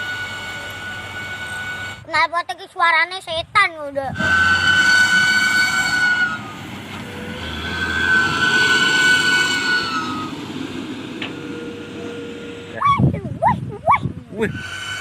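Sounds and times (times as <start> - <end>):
high turbo whistle: 0.0 - 2.1, 4.1 - 13.1, 14.4 - 15.0
engine revving through loud exhaust: 4.2 - 12.8.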